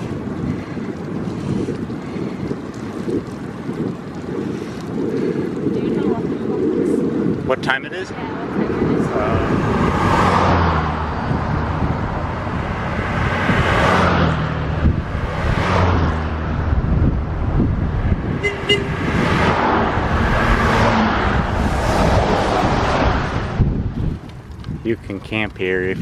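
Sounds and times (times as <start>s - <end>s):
wind rushing over microphone: 0.0s - 26.0s
low rumble: 8.2s - 24.7s.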